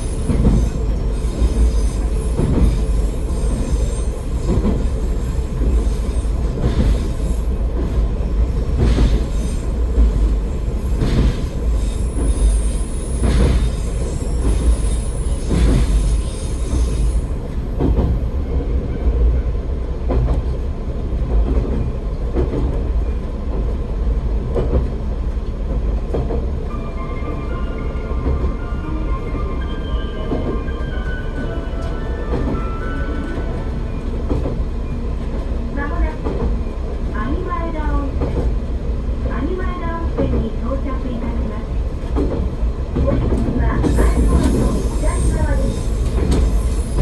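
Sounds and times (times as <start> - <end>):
high wheel squeal: 0.0 - 7.6, 9.0 - 17.4, 43.9 - 47.0
diesel railcar rumbling: 0.0 - 47.0.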